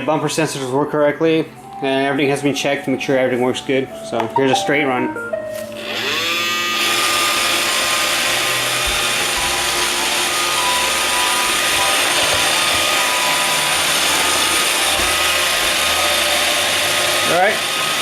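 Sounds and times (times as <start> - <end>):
robot vacuum whirring: 5.7 - 18.0.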